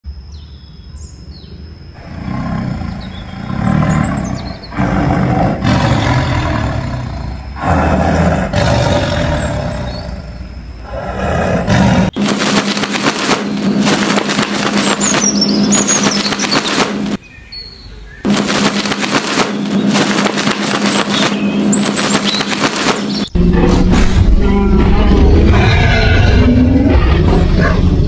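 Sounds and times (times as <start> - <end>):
tiger roaring: 2.0 - 12.2, 23.4 - 28.0
faint bird chirps: 2.3 - 4.8, 14.8 - 18.3
rapidly pulsing sound: 12.0 - 17.2, 18.3 - 24.4.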